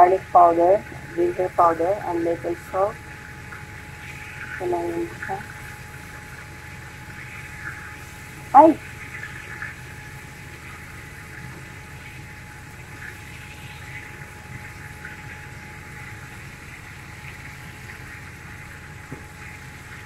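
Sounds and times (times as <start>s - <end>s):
chicken sizzling in frying pan: 5.2s - 20.0s.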